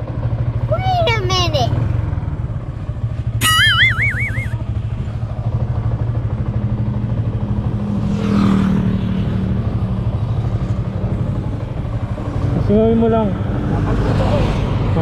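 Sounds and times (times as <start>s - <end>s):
motorcycle engine running: 0.0s - 15.0s
warbling high whistle: 3.4s - 4.6s.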